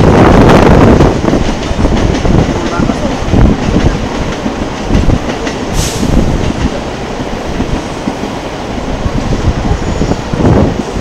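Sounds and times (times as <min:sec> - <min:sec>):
train rumbling on tracks: 0:00.0 - 0:11.0
brief hiss: 0:05.8 - 0:06.3.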